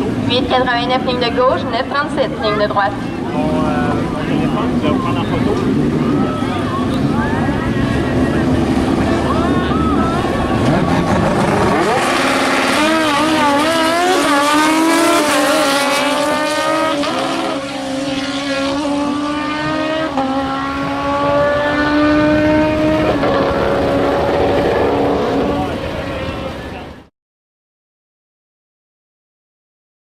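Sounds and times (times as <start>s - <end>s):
drag racer engine revving: 0.0s - 26.8s.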